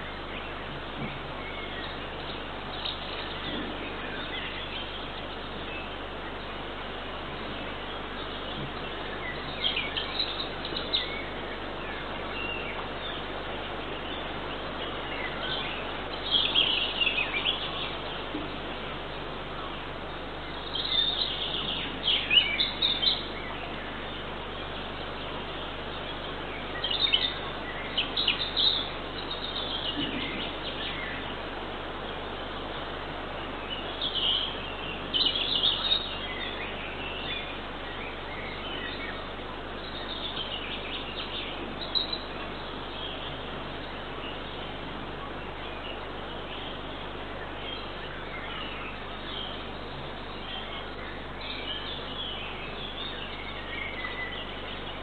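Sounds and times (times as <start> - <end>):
steady background hiss: 0.0 - 55.0
bird chirps: 20.4 - 31.3, 33.6 - 55.0.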